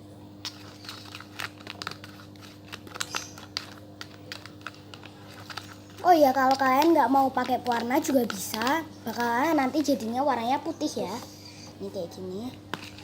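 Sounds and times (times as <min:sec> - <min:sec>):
faint steady hum: 0:00.0 - 0:13.0
fork stirring glue in container: 0:00.5 - 0:10.4, 0:12.7 - 0:13.0.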